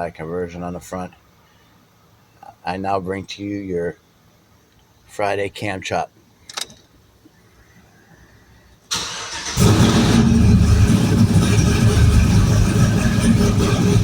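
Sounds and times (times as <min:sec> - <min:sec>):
truck engine choppy idle: 0:09.0 - 0:14.0.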